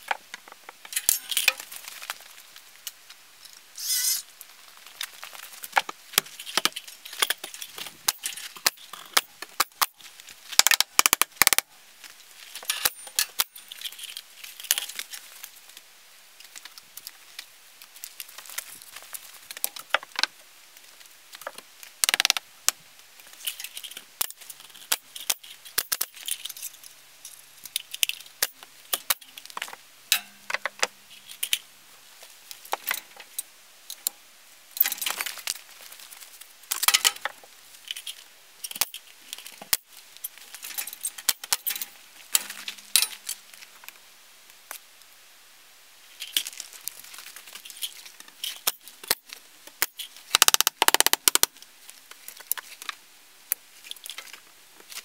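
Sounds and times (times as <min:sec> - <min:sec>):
metal tools clinking and rattling: 0:00.9 - 0:01.7, 0:12.6 - 0:15.2, 0:34.8 - 0:35.4, 0:40.2 - 0:43.4
sharp loud clicks: 0:50.3 - 0:51.5.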